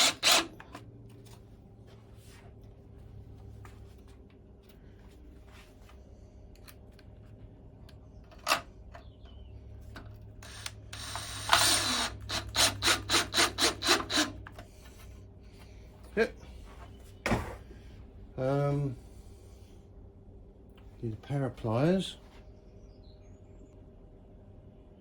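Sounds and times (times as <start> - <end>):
screwdriver driving screws into wood: 0.0 - 0.8, 10.4 - 14.6.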